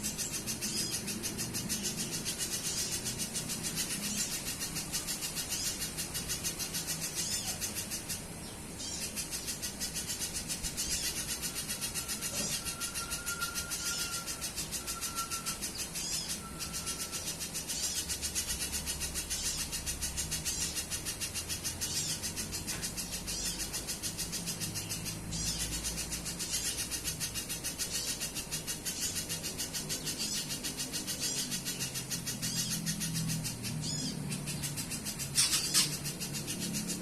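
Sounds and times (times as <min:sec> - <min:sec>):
bird high chips: 0:34.9 - 0:37.0.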